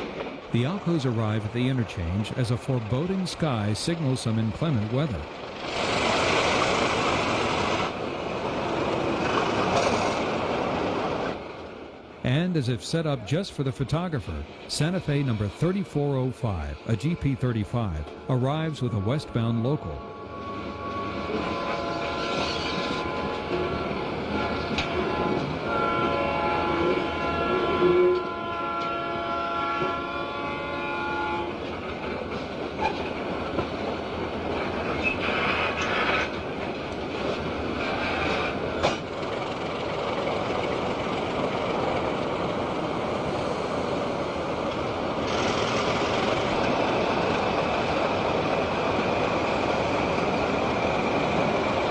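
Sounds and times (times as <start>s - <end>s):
train rumbling: 0.0s - 51.9s
locomotive air horn chord: 18.4s - 31.7s.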